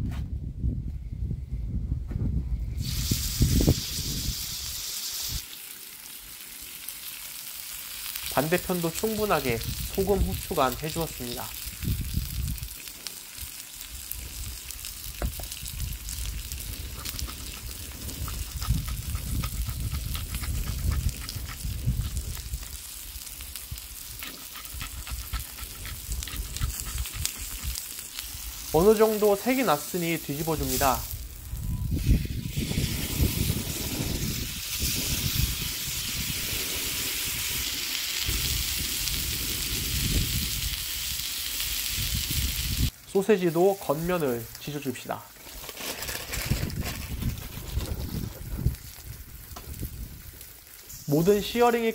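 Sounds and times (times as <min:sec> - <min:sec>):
fat crackling and spitting: 0:02.8 - 0:43.0
steak sizzling in a pan: 0:02.8 - 0:45.6, 0:47.8 - 0:51.9.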